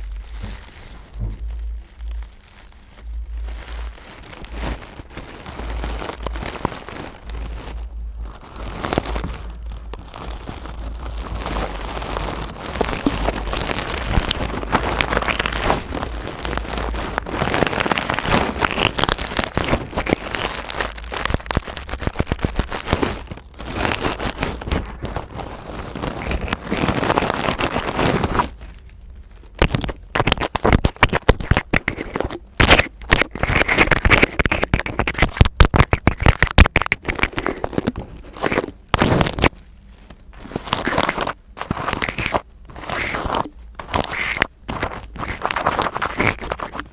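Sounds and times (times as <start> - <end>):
crisp tapping and scratching: 0.0 - 46.9
scratching and rustling on object: 0.0 - 46.9.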